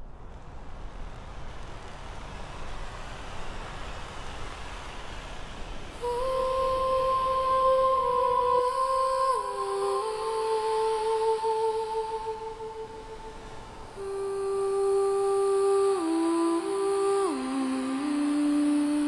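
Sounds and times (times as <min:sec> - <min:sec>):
ambient wash of noise: 0:00.0 - 0:19.0
person humming a held note: 0:06.0 - 0:19.0.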